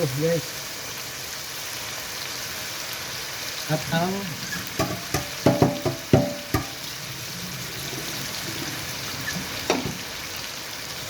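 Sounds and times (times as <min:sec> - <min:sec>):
chicken sizzling in hot oil: 0:00.0 - 0:11.0
utensil knocking against pan: 0:04.8 - 0:06.8, 0:09.7 - 0:10.0.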